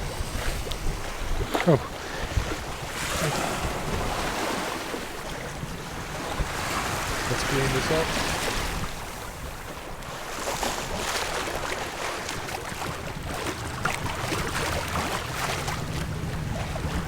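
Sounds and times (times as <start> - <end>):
water rushing along hull: 0.0 - 17.0
wind buffeting microphone: 0.0 - 17.0.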